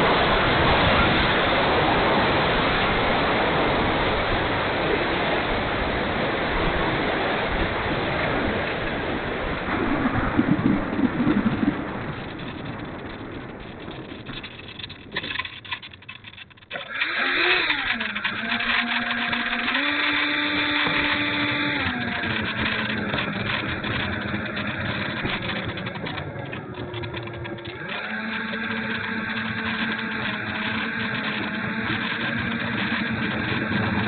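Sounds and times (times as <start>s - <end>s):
rushing air: 0.0s - 15.4s
electric ducted fans whining: 0.0s - 34.0s.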